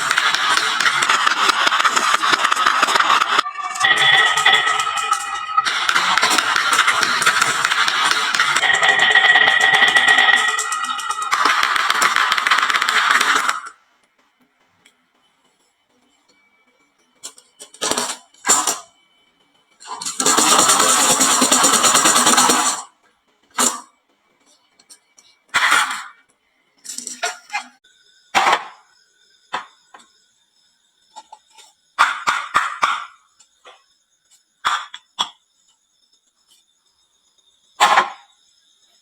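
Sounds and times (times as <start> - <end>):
faint high ringing: 3.3 - 12.4.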